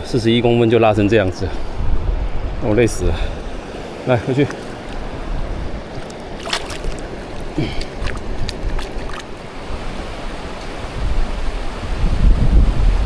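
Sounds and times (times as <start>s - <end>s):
wind buffeting microphone: 0.0s - 13.0s
river water rushing: 3.3s - 11.7s
sharp clicks or splashes: 5.9s - 9.4s.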